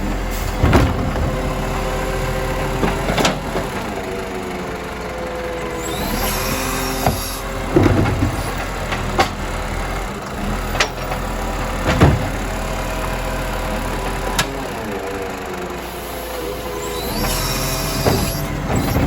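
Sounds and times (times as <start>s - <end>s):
truck engine running: 0.0s - 19.0s
sharp knocks and bangs: 0.5s - 1.8s, 11.8s - 12.5s.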